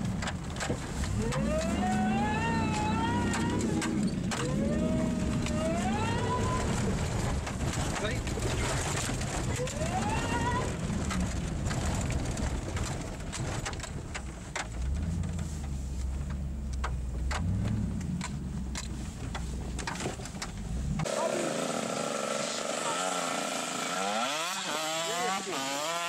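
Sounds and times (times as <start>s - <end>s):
raindrops ticking on windshield: 0.0s - 21.0s
car engine rumbling: 0.0s - 26.0s
motocross bike engine buzzing: 21.0s - 26.0s.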